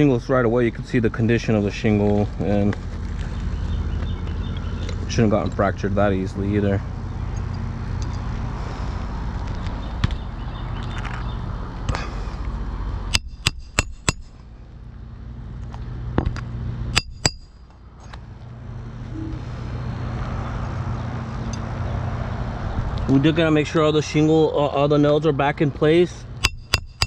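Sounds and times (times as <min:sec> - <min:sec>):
hammer striking nails: 0:13.1 - 0:14.3, 0:17.0 - 0:17.5, 0:26.4 - 0:27.0.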